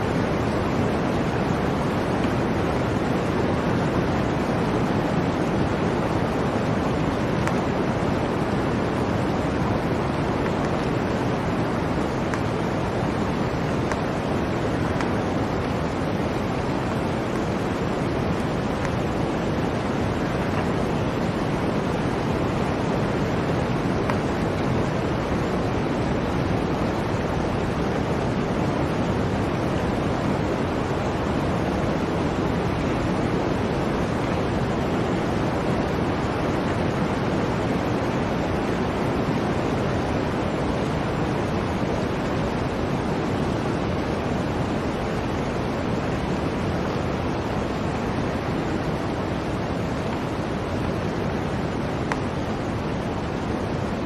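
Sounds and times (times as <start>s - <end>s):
blizzard wind blowing: 0.0s - 54.0s.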